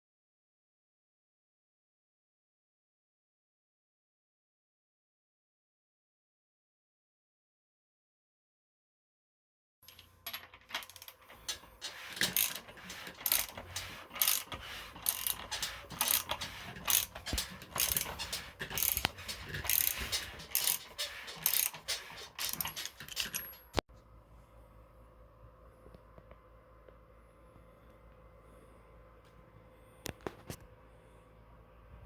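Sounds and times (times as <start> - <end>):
ratchet wrench clicking: 9.9 - 23.6.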